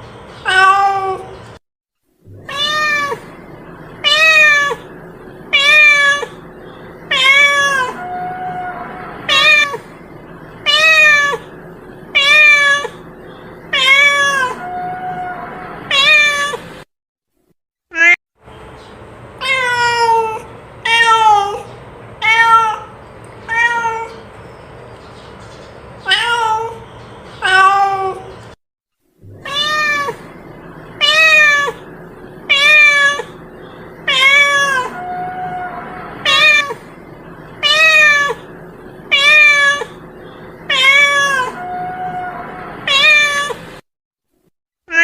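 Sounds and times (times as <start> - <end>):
cat meowing: 0.4 - 1.3, 2.4 - 3.3, 4.0 - 4.9, 5.5 - 6.4, 7.1 - 9.8, 10.6 - 11.5, 12.2 - 13.0, 13.7 - 16.6, 19.4 - 24.2, 26.1 - 26.8, 27.4 - 28.3, 29.3 - 30.3, 31.0 - 31.9, 32.5 - 33.4, 34.0 - 36.9, 37.6 - 38.5, 39.1 - 40.0, 40.7 - 43.6
steady low hum: 2.3 - 16.0, 29.2 - 43.8.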